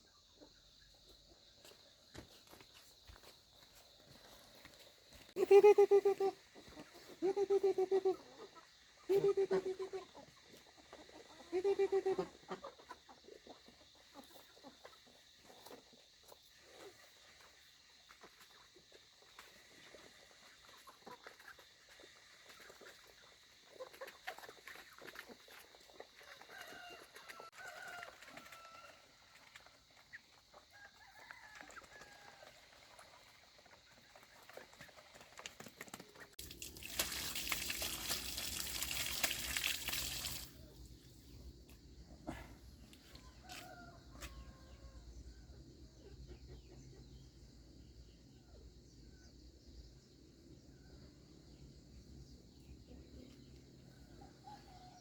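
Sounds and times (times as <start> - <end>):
chickens clucking: 5.4 - 36.3, 45.8 - 47.2.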